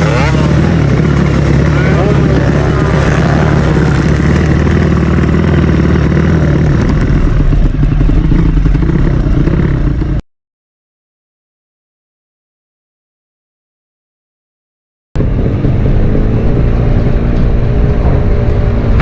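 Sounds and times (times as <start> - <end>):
motorcycle engines running loud: 0.0 - 10.2, 15.2 - 19.0.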